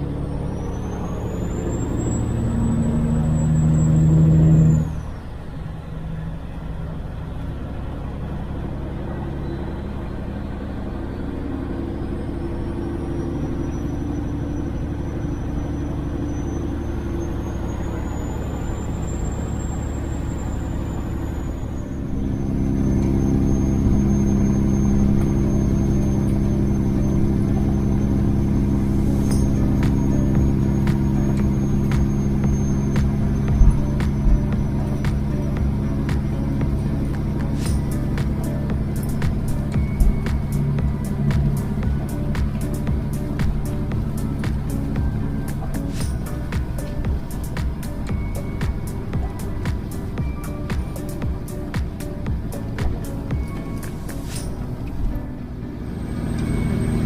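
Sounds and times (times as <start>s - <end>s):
truck diesel engine running: 0.0s - 57.0s
thin high whistle: 13.0s - 34.2s, 53.4s - 54.6s.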